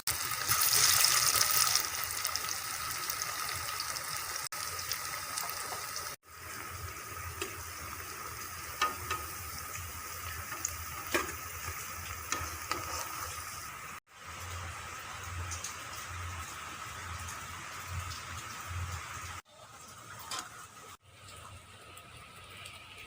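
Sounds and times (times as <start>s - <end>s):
food frying in hot oil: 0.0s - 23.0s.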